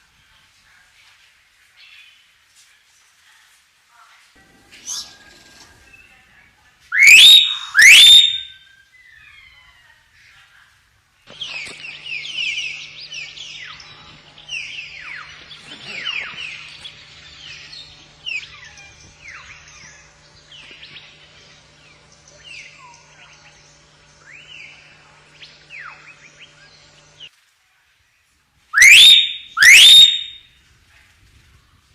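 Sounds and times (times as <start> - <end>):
myna whistling and chattering: 6.9 - 8.5
loud rising whistles: 7.0 - 8.5, 28.8 - 30.4.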